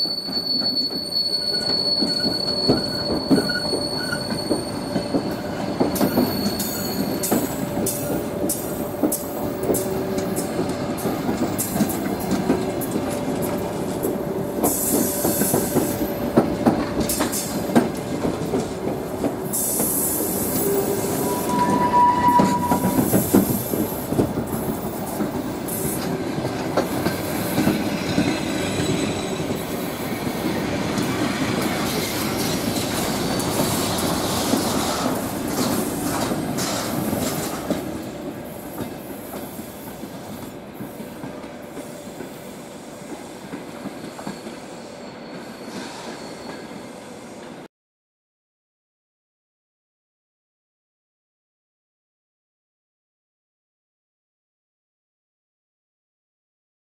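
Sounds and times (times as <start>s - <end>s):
high squeal: 0.0s - 8.0s, 20.3s - 23.2s, 44.0s - 47.4s
train coaches rolling past: 0.0s - 47.7s.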